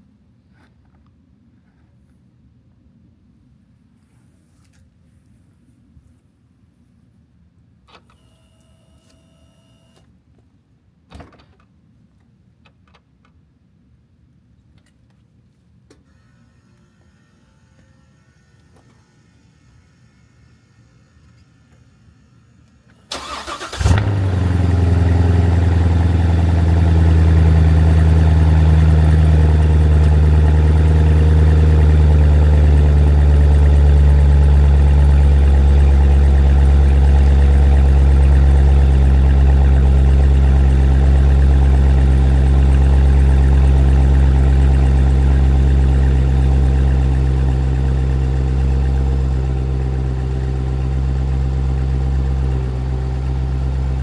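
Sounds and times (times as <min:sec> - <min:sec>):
engine cranking: 0:23.1 - 0:24.6
car engine idling: 0:23.1 - 0:54.0.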